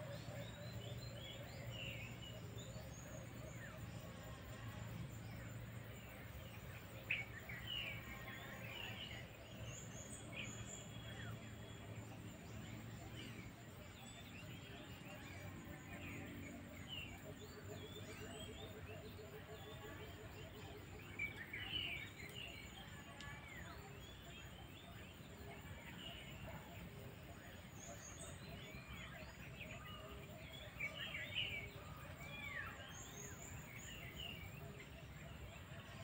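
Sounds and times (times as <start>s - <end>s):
faint outdoor background: 0.0s - 36.0s
small birds chirping: 0.0s - 36.0s.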